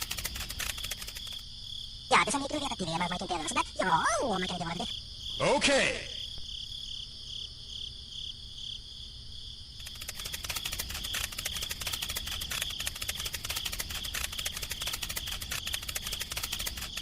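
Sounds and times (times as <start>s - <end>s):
fast clicking rattle: 0.0s - 1.4s, 9.8s - 17.0s
crickets chirping: 0.0s - 17.0s.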